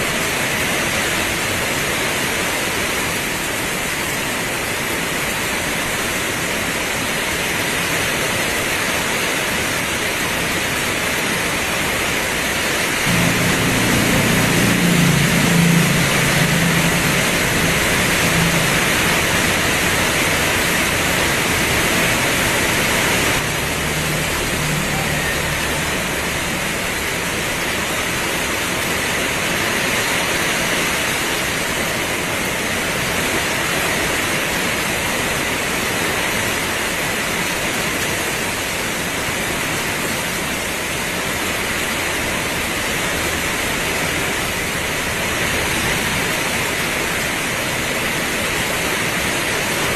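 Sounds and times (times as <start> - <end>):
heavy rain pouring: 0.0 - 49.9
low humming rumble: 13.1 - 27.8.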